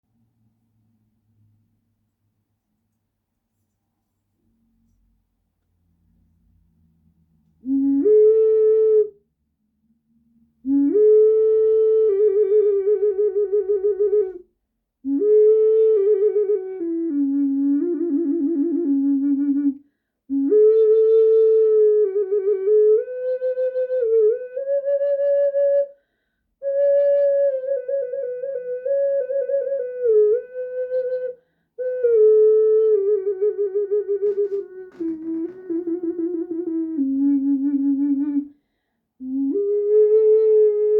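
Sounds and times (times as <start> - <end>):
ocarina melody with vibrato: 10.7 - 14.4, 26.6 - 38.5.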